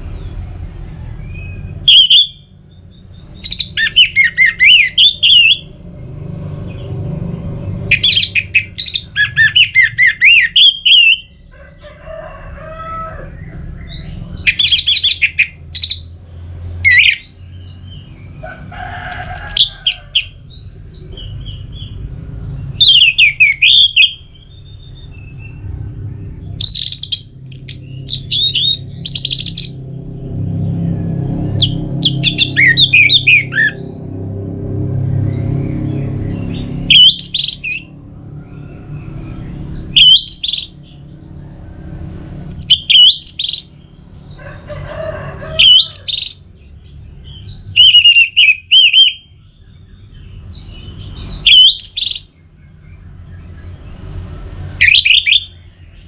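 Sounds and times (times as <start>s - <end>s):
steady low rumble: 13.2s - 45.4s.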